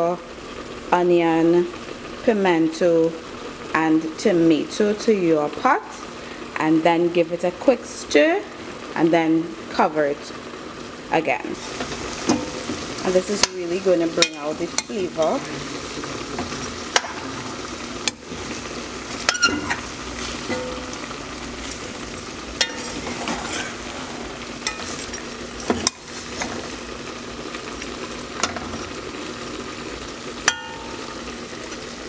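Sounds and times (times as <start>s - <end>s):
food sizzling in a pot: 0.0s - 32.0s
spoon scraping a pot: 22.6s - 23.8s.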